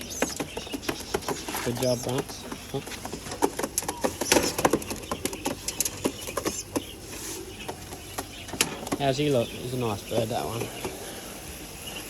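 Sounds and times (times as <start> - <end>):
pigeons tapping and scuffling: 0.0 - 12.0.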